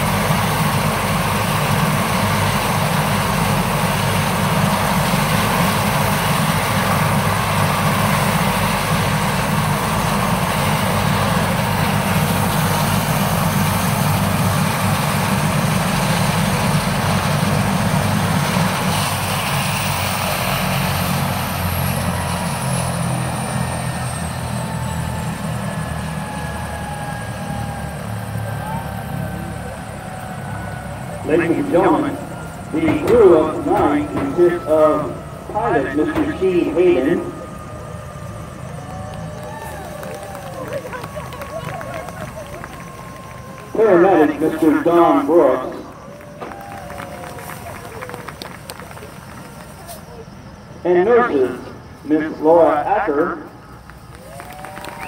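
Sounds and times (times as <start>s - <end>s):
helicopter turbine and rotor: 0.0s - 55.0s
high whine sliding down: 25.6s - 48.5s.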